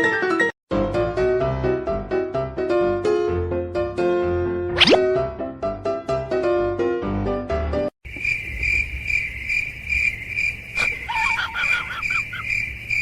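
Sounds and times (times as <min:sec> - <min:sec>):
high insect chirp: 0:08.0 - 0:13.0.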